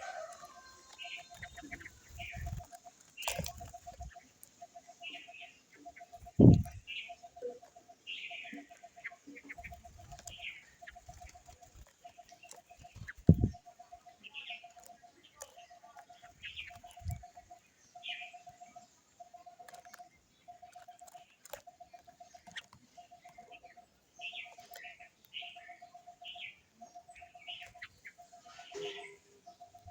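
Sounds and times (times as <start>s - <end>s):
bird low pulsing trill: 0.0s - 29.9s
scattered clicks: 0.1s - 5.2s, 8.5s - 17.6s, 18.2s - 25.8s.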